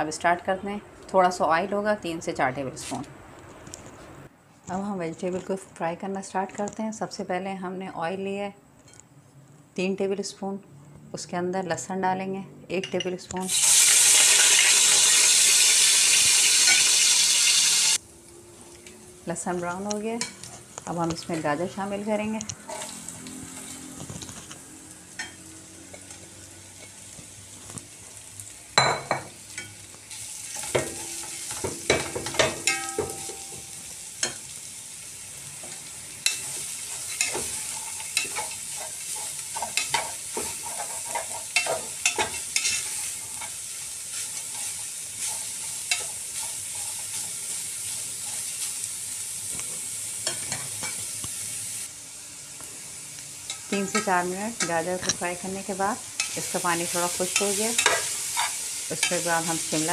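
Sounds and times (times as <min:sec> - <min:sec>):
vegetables sizzling in oil: 0:13.4 - 0:59.9
spoon scraping and knocking pot: 0:36.2 - 0:43.5.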